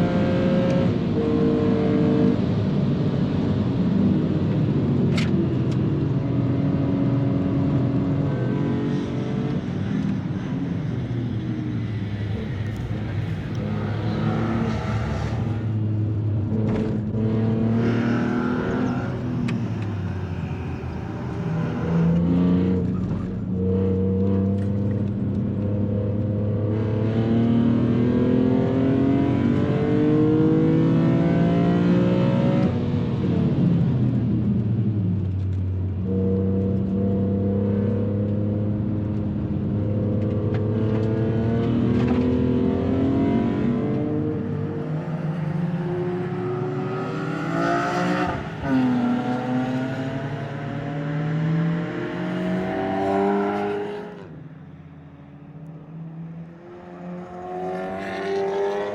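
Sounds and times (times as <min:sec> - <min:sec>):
car engine revving: 0:04.4 - 0:23.5, 0:40.2 - 0:58.9
gear change: 0:07.4 - 0:15.8, 0:17.4 - 0:22.2, 0:43.0 - 0:58.9.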